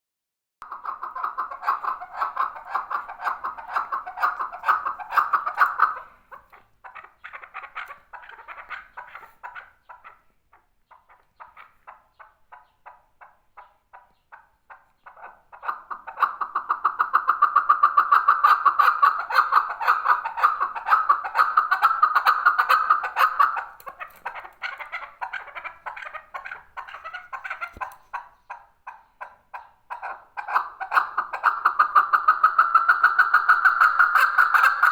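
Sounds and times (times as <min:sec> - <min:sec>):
partridge clucking calls: 0:00.6 - 0:34.9.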